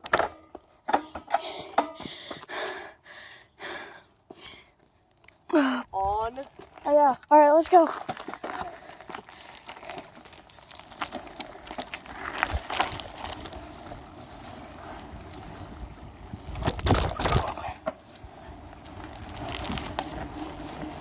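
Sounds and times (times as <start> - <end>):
bicycle knocks and rattles: 0.0 - 2.4, 7.9 - 21.0
bicycle rolling noise: 0.0 - 2.9, 5.6 - 21.0.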